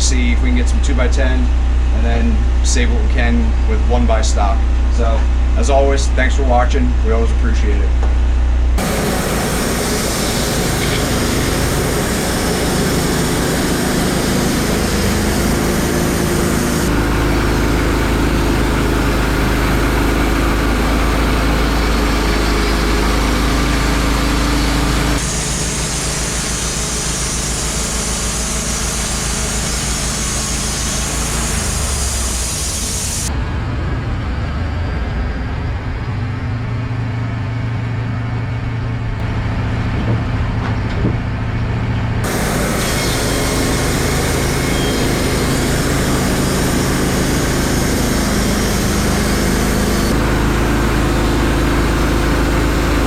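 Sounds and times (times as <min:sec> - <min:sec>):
sawmill engine droning: 0:00.0 - 0:53.0
saw blade hissing through log: 0:08.8 - 0:18.2, 0:21.9 - 0:33.3, 0:42.2 - 0:50.2.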